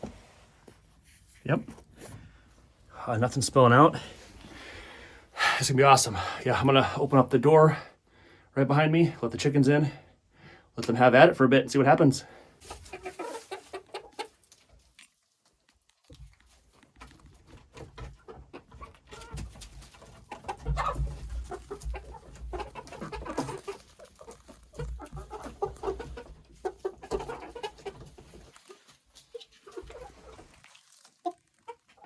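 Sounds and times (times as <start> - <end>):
chickens clucking: 12.6 - 15.0, 16.2 - 32.0.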